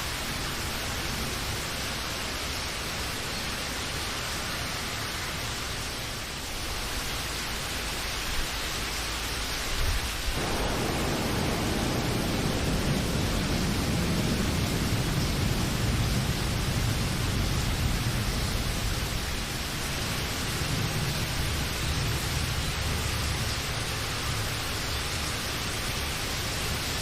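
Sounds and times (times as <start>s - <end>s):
rain hiss: 0.0s - 27.0s
low rumble: 10.4s - 22.8s.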